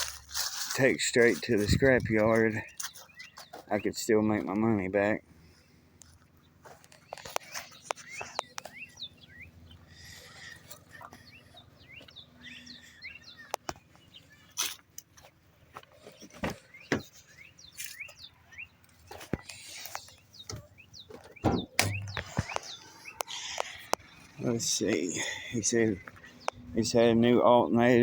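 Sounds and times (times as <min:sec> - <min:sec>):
small birds chirping: 0:00.0 - 0:28.0
sharp knocks or clicks: 0:21.4 - 0:22.7.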